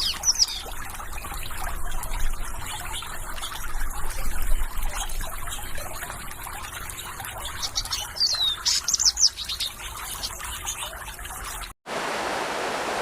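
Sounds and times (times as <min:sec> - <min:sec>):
water trickling: 0:00.0 - 0:11.8
bird whistling and chirping: 0:07.6 - 0:10.3.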